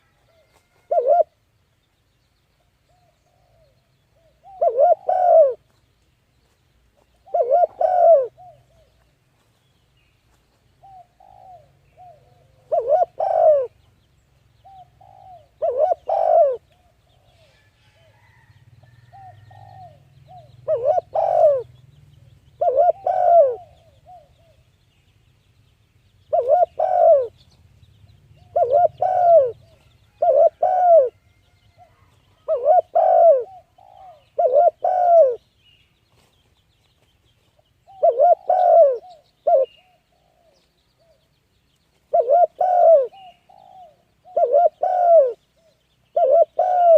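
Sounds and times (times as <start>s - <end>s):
bird calling: 2.9s - 5.7s, 7.2s - 9.0s, 10.8s - 13.9s, 14.6s - 18.5s, 19.1s - 24.7s, 26.2s - 27.6s, 28.4s - 35.5s, 37.5s - 41.3s, 42.0s - 46.9s.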